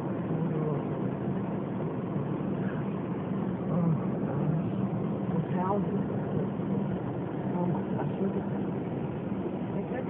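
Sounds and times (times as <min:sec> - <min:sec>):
car engine low rumble: 0:00.0 - 0:10.0.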